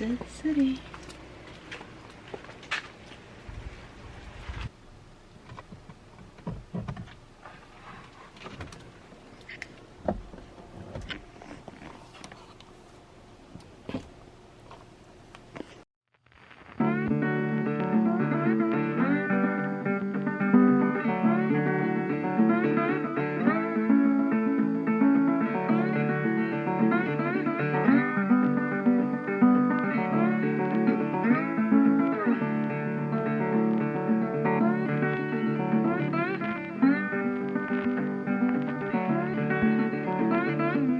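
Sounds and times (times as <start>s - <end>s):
instrumental guitar music: 16.7s - 40.9s.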